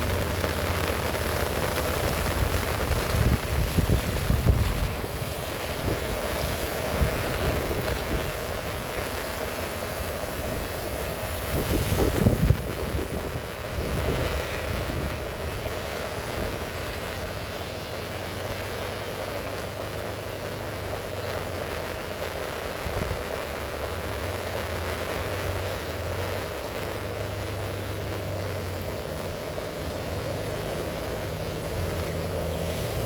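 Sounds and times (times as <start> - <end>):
heavy rain falling: 0.0 - 33.0
low steady rumble: 0.0 - 33.0.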